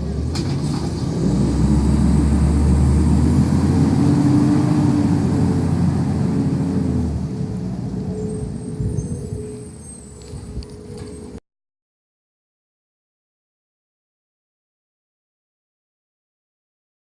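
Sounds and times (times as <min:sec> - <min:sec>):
garbage truck engine pulling away: 0:00.0 - 0:11.4.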